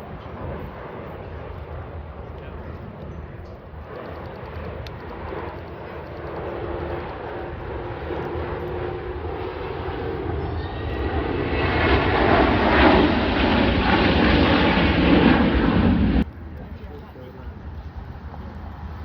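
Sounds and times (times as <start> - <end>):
aircraft flying past: 0.0 - 19.0.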